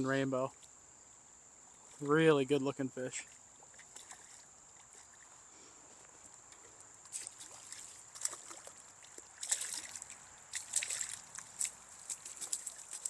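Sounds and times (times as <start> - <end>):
stream water splashing: 1.7 - 5.5, 6.4 - 13.0.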